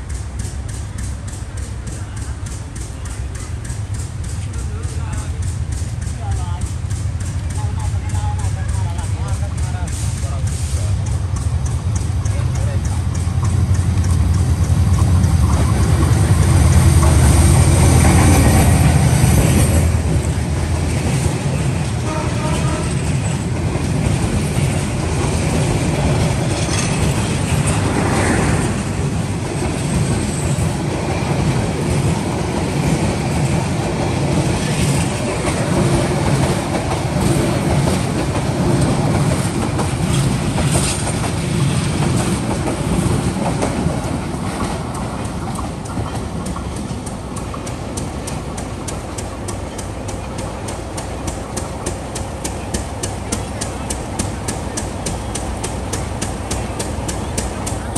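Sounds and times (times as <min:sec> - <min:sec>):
rapid regular clicking: 0:00.0 - 0:21.9, 0:42.0 - 0:57.9
train wheels rumbling and clattering: 0:00.0 - 0:57.9.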